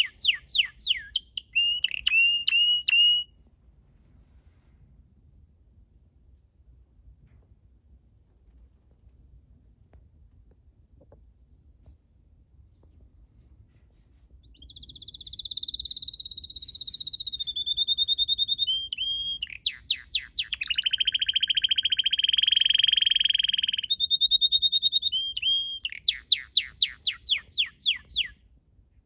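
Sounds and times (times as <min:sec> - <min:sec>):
canary singing: 0:00.0 - 0:03.3, 0:14.5 - 0:28.4.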